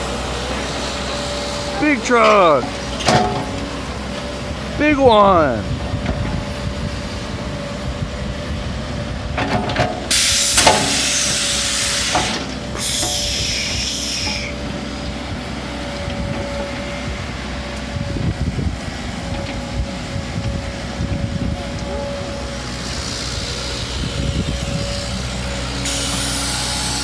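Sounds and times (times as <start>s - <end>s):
heavy engines droning: 0.0s - 27.0s
air brakes hissing: 10.1s - 14.6s, 25.8s - 27.0s.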